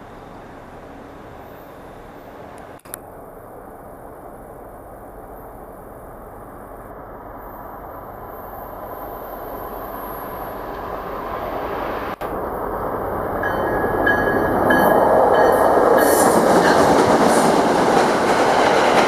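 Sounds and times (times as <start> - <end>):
train rail noise: 0.0 - 19.0.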